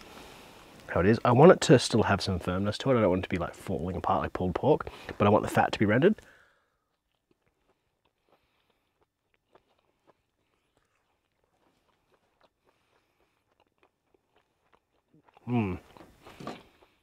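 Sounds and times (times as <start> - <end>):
person chewing: 6.6 - 17.0.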